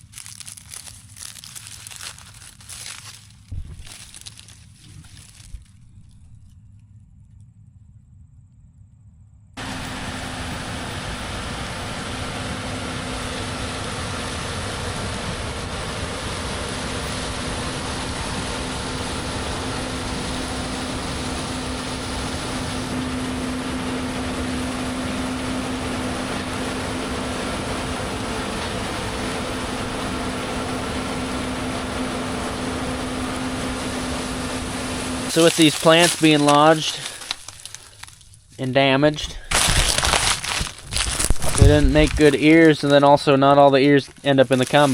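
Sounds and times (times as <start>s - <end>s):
combine harvester machinery drone: 0.0s - 44.9s.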